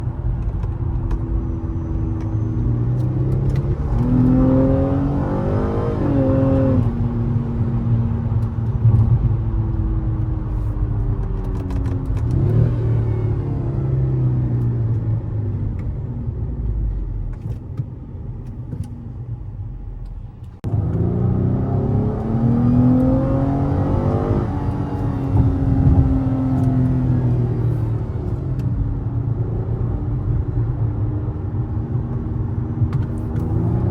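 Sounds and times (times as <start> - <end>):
car engine revving: 2.0 - 14.7, 20.6 - 28.6.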